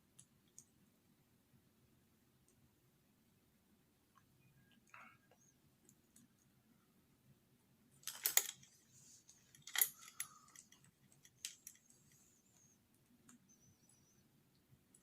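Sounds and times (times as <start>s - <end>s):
wiring connectors clicking and rattling: 8.0s - 8.8s, 9.5s - 12.0s.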